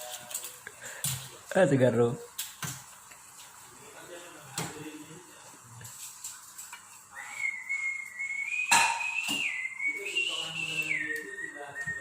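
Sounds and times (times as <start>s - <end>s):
high whistle: 7.1s - 12.0s
sharp knock: 8.7s - 9.4s.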